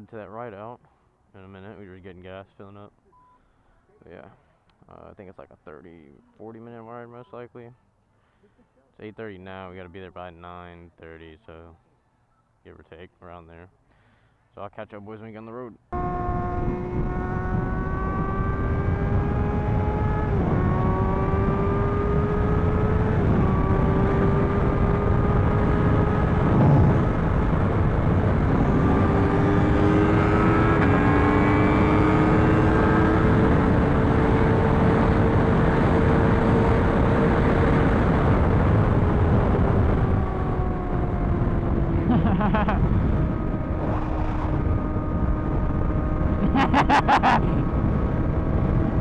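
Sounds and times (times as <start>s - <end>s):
second engine: 15.9s - 49.0s
wind noise: 16.0s - 49.0s.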